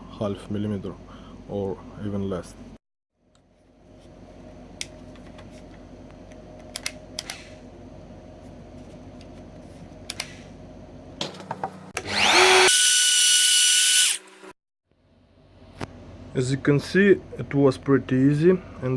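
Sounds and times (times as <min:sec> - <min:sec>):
router motor whining: 0:12.0 - 0:14.5.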